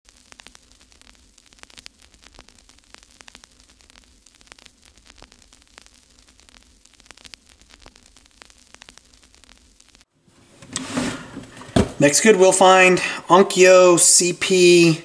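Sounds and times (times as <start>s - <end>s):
crackling static with pops: 0.0s - 10.7s.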